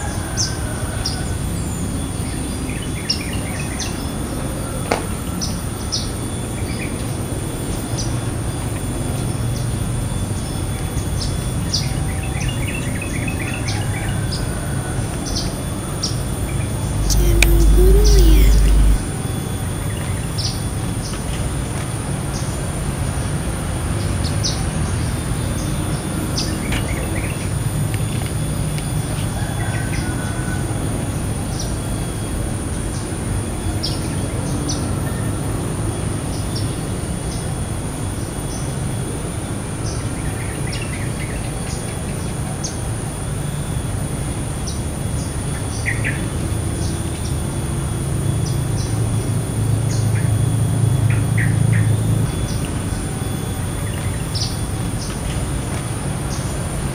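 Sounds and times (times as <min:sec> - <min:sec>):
faint high whine: 0:15.8 - 0:20.6
low rumble: 0:16.7 - 0:19.1.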